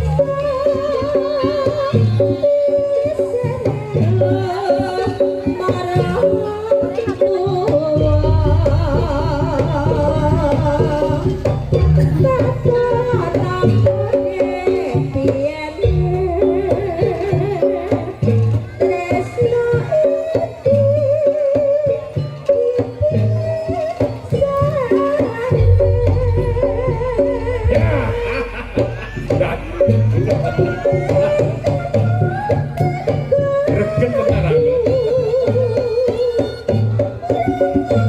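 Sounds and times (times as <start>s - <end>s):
ornamented melody line: 0.0s - 19.8s, 20.6s - 38.0s
hand drums beating: 0.0s - 38.0s
deep low sustained tone: 27.0s - 30.1s.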